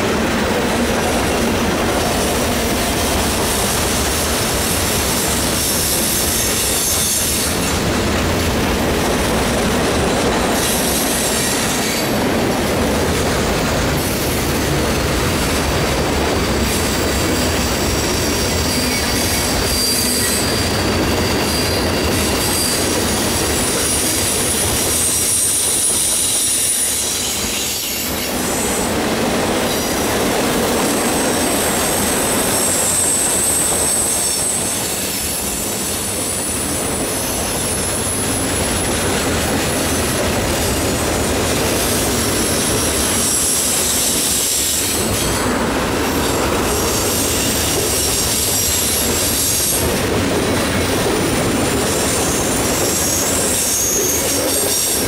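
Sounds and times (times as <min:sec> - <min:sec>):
freight train cars rolling: 0:00.0 - 0:55.0
wheel squeal: 0:16.7 - 0:24.2, 0:31.8 - 0:38.9, 0:51.9 - 0:55.0.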